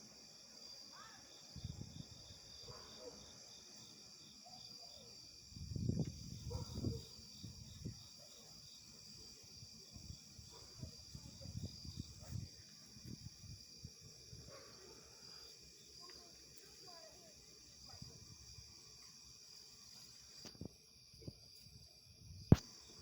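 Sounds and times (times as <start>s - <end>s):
insects chirping: 0.0s - 23.0s.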